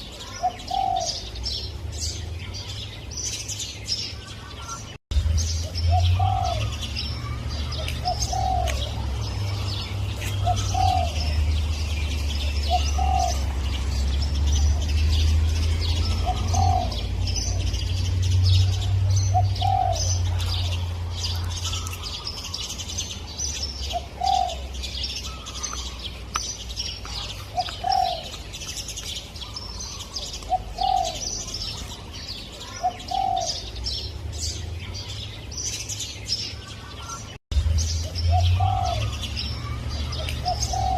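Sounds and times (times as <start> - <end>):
small birds chirping: 0.0 - 40.9
dove cooing: 0.1 - 1.3, 5.8 - 11.6, 12.4 - 17.8, 18.5 - 20.8, 23.8 - 25.6, 27.2 - 28.4, 29.4 - 31.9, 32.6 - 33.7, 38.3 - 40.9.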